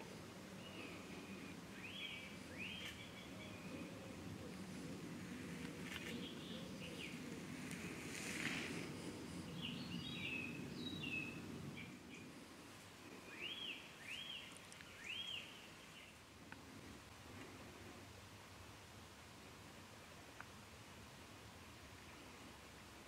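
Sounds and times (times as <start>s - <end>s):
birds chirping: 0.0s - 16.3s.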